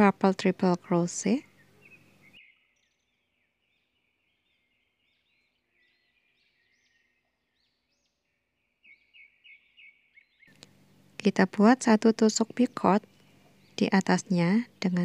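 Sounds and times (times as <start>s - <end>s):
faint high bird chirps: 0.8s - 10.8s.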